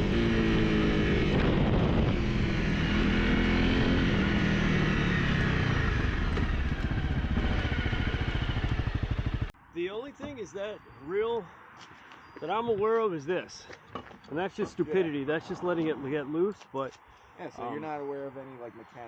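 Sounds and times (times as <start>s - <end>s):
motorcycle engine idling: 5.1s - 9.6s.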